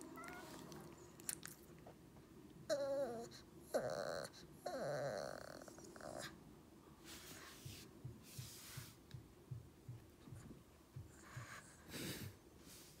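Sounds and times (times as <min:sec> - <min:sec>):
soft low thumps: 0:07.6 - 0:11.6
puppy breathing and snorting: 0:10.3 - 0:13.0.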